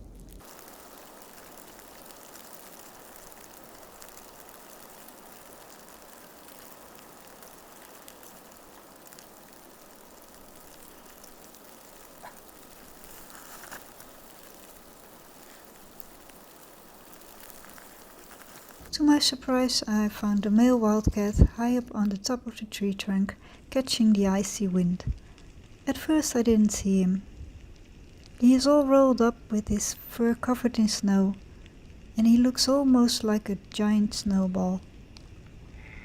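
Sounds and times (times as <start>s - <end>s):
blizzard snow hiss and patter: 0.0s - 19.7s
faint ticks: 0.2s - 19.0s.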